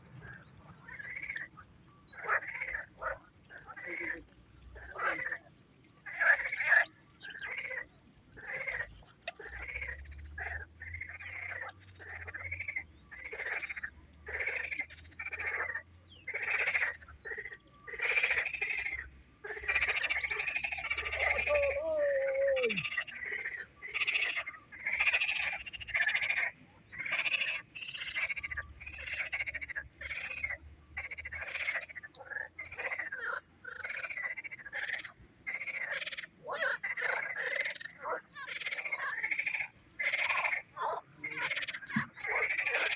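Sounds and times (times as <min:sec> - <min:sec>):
frogs croaking: 0:00.0 - 0:42.9.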